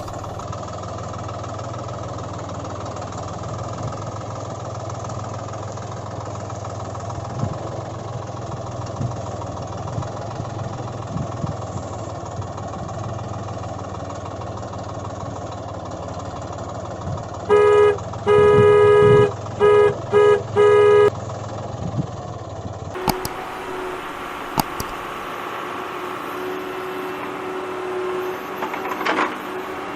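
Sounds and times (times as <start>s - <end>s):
tractor engine running: 0.0s - 29.9s
horn honking: 17.5s - 21.1s, 23.0s - 29.9s.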